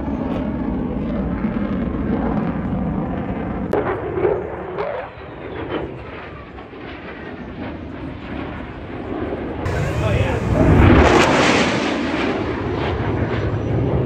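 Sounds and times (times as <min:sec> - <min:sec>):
aircraft engine rumble: 0:09.7 - 0:11.8.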